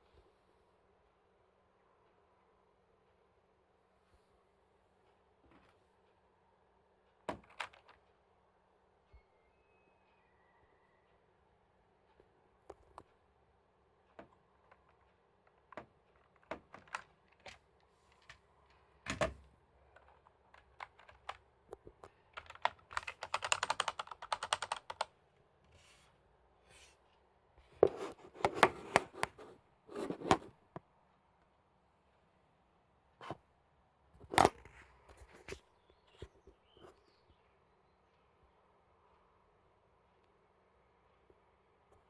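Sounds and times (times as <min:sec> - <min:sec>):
typing on computer keyboard: 0:07.3 - 0:08.0, 0:14.2 - 0:25.1.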